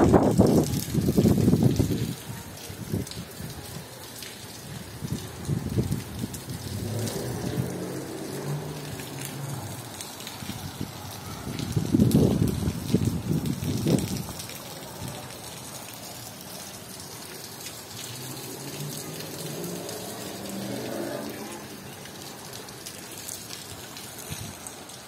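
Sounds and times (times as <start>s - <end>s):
wind buffeting microphone: 0.0s - 3.8s, 4.7s - 15.2s
rain on standing water: 0.0s - 25.0s.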